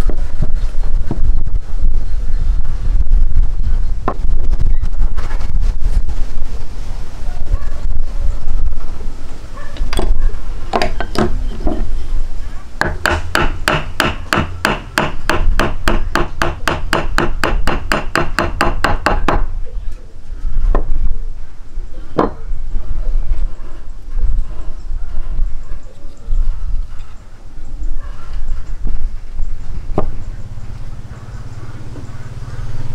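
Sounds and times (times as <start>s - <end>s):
wind rumble on microphone: 0.0s - 12.8s, 18.4s - 32.9s
rapid sharp knocks: 12.8s - 19.5s.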